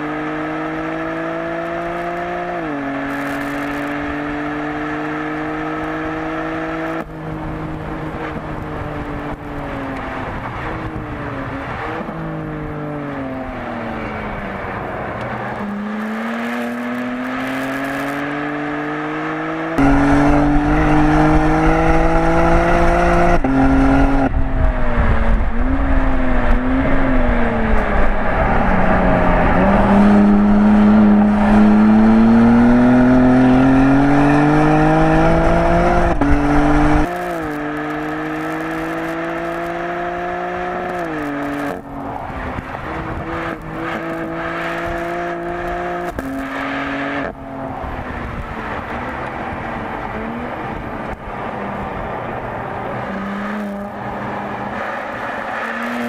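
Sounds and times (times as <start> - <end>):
race car engine accelerating: 0.0 - 56.0
wind rumble on microphone: 6.9 - 12.9, 19.8 - 37.7, 38.8 - 46.2, 47.1 - 52.6.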